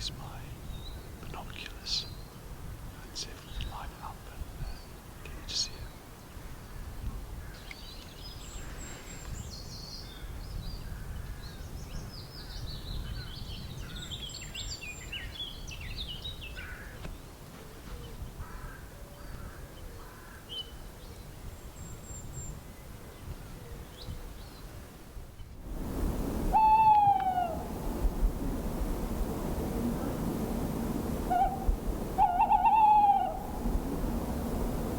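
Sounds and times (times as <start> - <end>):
birds chirping and trilling: 0.0 - 2.4
steady low rumble: 25.6 - 34.9.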